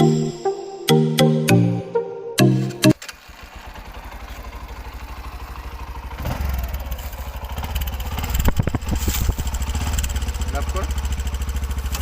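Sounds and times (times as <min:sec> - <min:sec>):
motorcycle engine idling: 0:02.9 - 0:12.0.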